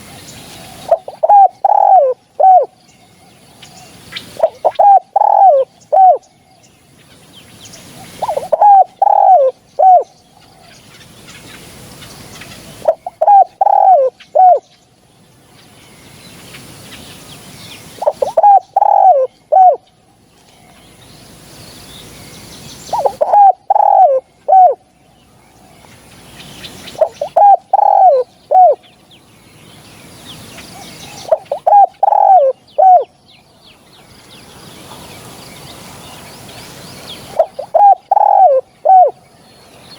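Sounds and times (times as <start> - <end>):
dove cooing: 0.0 - 6.2, 7.9 - 10.8, 12.4 - 14.6, 17.9 - 19.8, 22.9 - 24.9, 26.9 - 28.8, 30.7 - 33.1, 37.3 - 39.2
small birds chirping: 0.0 - 39.9.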